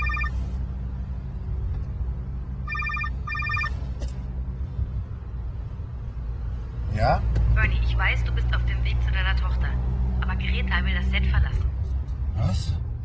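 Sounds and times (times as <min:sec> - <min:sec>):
telephone ringing: 0:00.0 - 0:00.4, 0:02.6 - 0:03.8.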